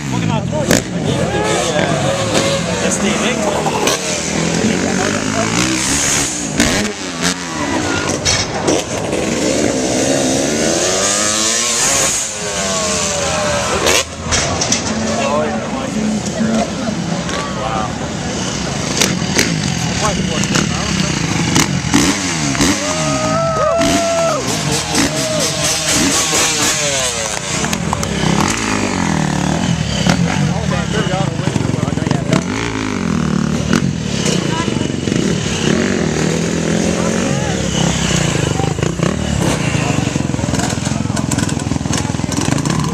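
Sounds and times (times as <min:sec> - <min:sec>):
dirt bike engines revving: 0:00.0 - 0:42.9
engine crackles: 0:00.0 - 0:42.9.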